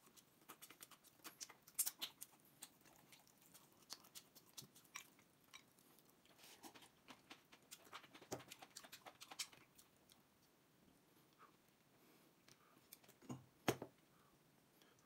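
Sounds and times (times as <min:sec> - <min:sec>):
person chewing food: 0:00.0 - 0:10.6.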